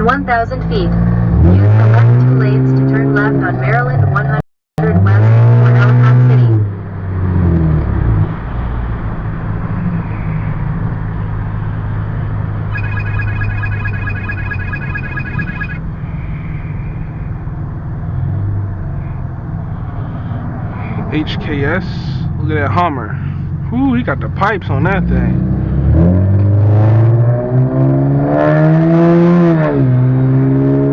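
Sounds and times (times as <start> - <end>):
car engine and road noise: 0.0 - 30.9
rapid high-pitched beeping: 12.7 - 15.8.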